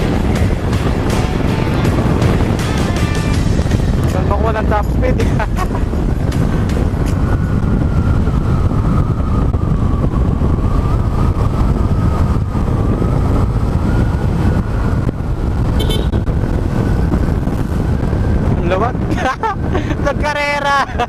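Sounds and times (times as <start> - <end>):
scooter engine and belt whine: 0.0 - 20.0
wind rush over microphone: 0.0 - 21.0.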